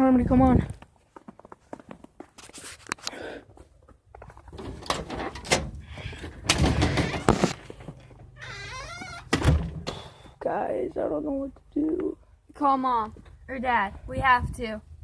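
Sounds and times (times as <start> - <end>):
door knocks and thuds: 6.5 - 7.5, 9.0 - 10.0.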